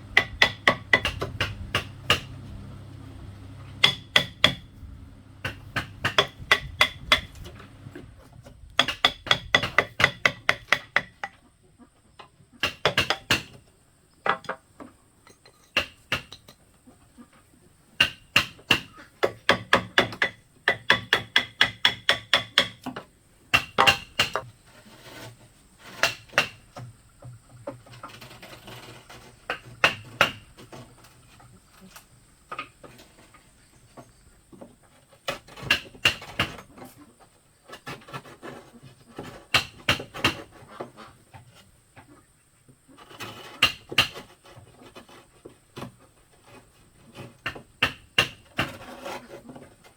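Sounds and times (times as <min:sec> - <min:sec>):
hammer blows on bamboo: 0:00.0 - 0:11.4, 0:12.6 - 0:13.6, 0:18.0 - 0:24.6, 0:25.8 - 0:27.0, 0:28.9 - 0:30.9, 0:35.2 - 0:36.6, 0:39.2 - 0:40.7, 0:43.4 - 0:44.4, 0:47.4 - 0:48.9.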